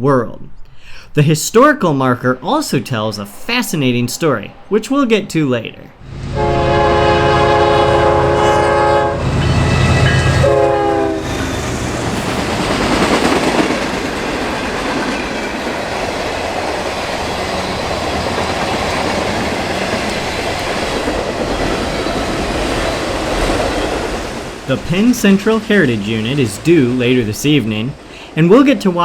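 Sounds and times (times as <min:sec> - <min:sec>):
locomotive engine rumble: 0:06.0 - 0:28.9
locomotive air horn: 0:06.1 - 0:11.5
train wheels rushing and clattering: 0:09.2 - 0:29.0.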